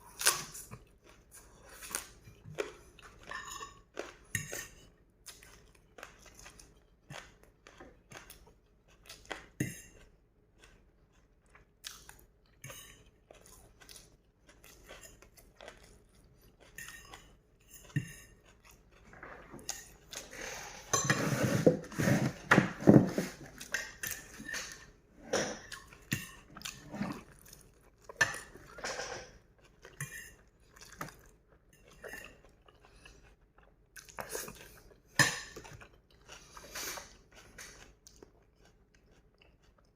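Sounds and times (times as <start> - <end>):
chewing noodles: 0.0 - 25.0, 25.6 - 39.9
cutlery clinking on bowl: 3.2 - 3.8, 28.2 - 29.4.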